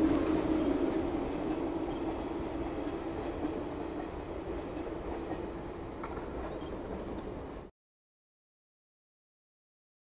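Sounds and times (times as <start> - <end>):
electric train passing: 0.0 - 7.7.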